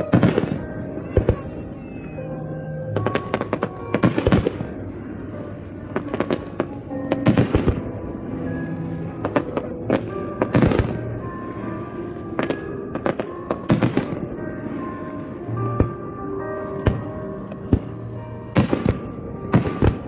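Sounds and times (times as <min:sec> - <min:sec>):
fireworks bangs: 0:00.0 - 0:20.0
music playing: 0:00.0 - 0:20.0.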